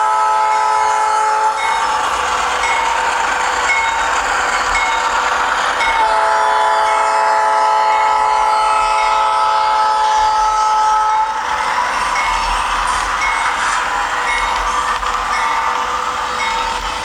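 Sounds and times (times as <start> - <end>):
diesel engine running: 1.6 - 6.0.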